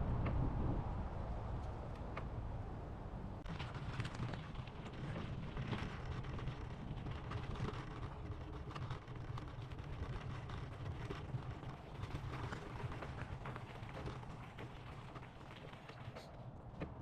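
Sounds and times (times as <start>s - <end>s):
wind on microphone: 0.0s - 2.7s
bicycle rolling on pavement: 3.4s - 17.0s
bike clicks and rattles: 3.4s - 17.0s.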